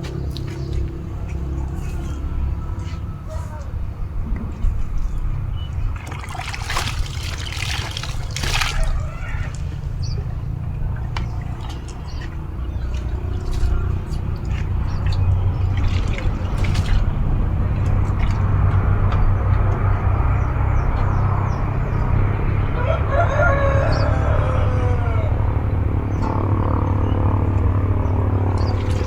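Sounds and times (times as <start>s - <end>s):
rooster crowing: 1.6s - 3.8s, 22.7s - 27.2s
steady low hum: 23.8s - 29.0s.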